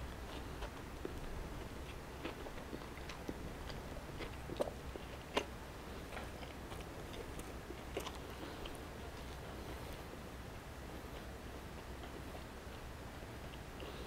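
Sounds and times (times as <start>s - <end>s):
person chewing food: 0.0s - 10.2s, 11.1s - 14.0s.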